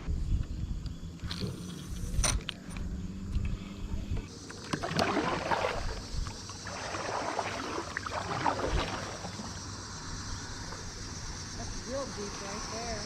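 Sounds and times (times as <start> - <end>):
paddle splashing in water: 4.5 - 9.7.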